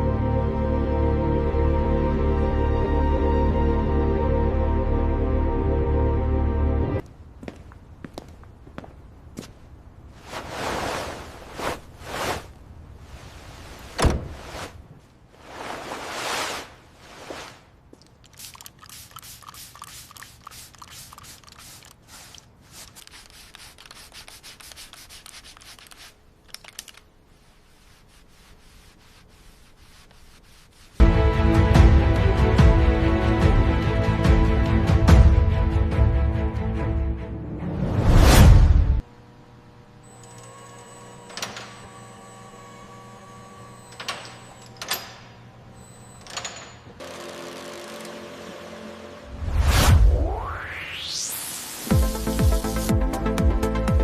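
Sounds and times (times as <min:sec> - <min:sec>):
sliding scraping noises: 0:10.1 - 0:18.2
hand sanding strokes: 0:15.4 - 0:17.8, 0:18.9 - 0:26.3, 0:27.2 - 0:31.0
loud music: 0:51.9 - 0:54.0.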